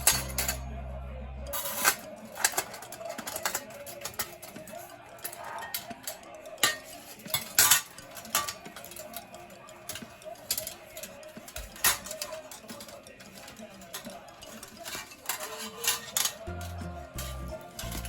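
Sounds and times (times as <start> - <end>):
metal parts clinking: 0.0 - 0.7, 1.5 - 18.0
low hum of music: 0.0 - 18.0.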